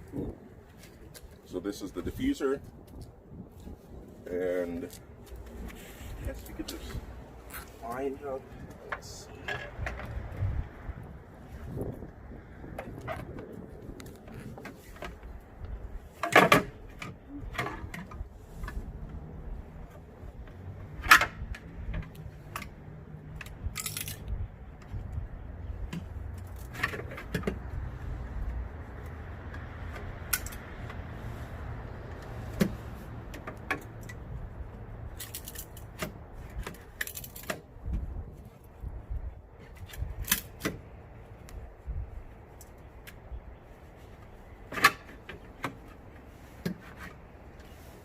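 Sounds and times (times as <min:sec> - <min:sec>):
knocks and rattles of handling parts: 0:08.5 - 0:10.4, 0:12.7 - 0:19.2, 0:19.8 - 0:31.2, 0:32.0 - 0:38.6.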